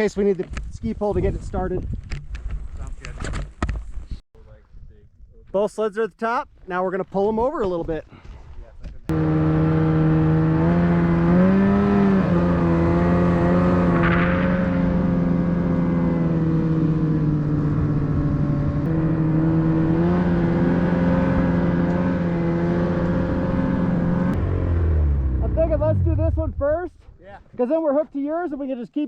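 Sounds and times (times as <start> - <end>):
snowmobile engine running: 9.1 - 26.8.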